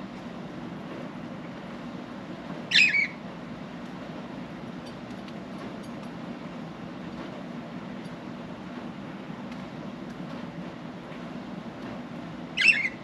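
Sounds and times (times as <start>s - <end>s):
budgerigar call: 2.7s - 3.2s, 12.6s - 13.0s.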